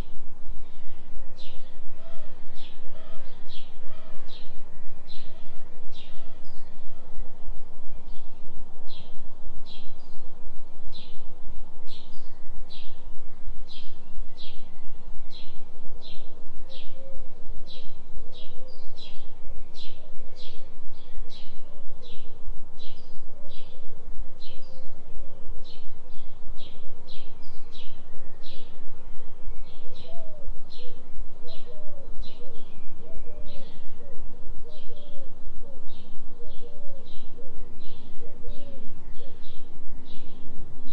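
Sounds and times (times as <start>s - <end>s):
lower warbling bird call: 13.7s - 40.9s.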